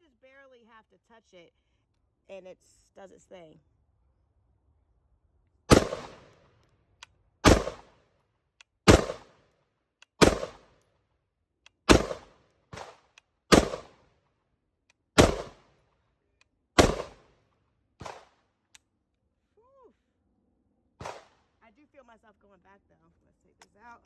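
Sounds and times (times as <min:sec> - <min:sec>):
rifle shots with echo: 0:05.7 - 0:06.4, 0:07.4 - 0:08.0, 0:08.9 - 0:09.4, 0:10.2 - 0:10.8, 0:11.9 - 0:14.0, 0:15.2 - 0:15.7, 0:16.8 - 0:17.3, 0:18.0 - 0:18.4, 0:21.0 - 0:21.4.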